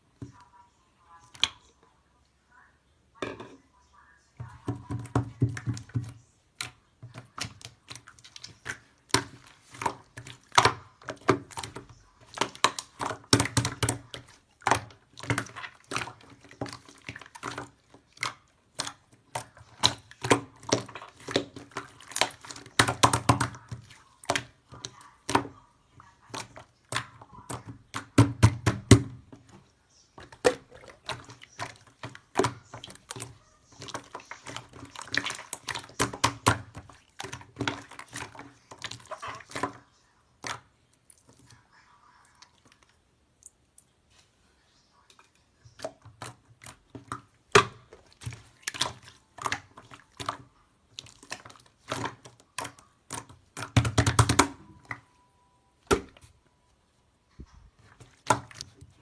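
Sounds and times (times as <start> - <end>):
clicks and taps: 51.2 - 55.1.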